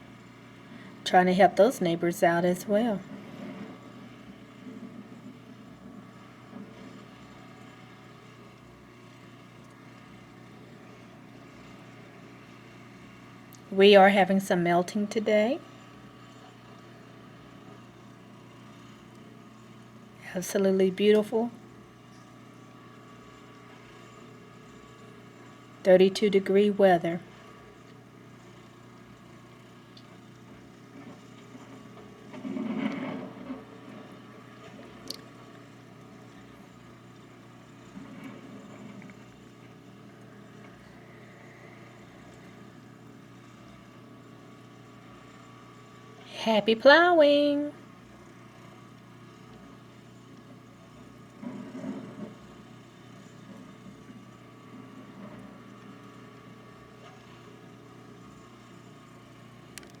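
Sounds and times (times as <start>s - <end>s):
distant snowplow engine rumble: 0.0s - 18.4s, 30.2s - 45.3s.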